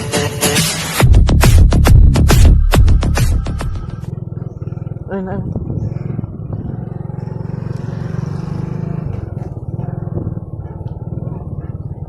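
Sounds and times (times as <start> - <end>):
motorcycle engine running: 1.0 - 12.0.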